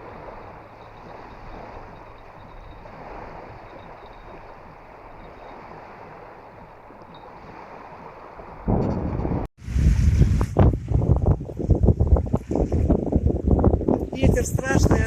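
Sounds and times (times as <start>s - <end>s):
choppy water washing at bank: 0.0s - 15.0s
wind buffeting microphone: 0.0s - 15.0s.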